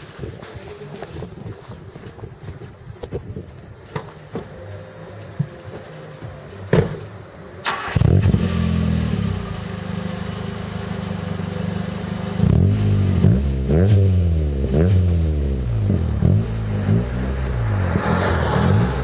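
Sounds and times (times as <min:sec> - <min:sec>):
car engine revving and idling: 0:07.7 - 0:19.0.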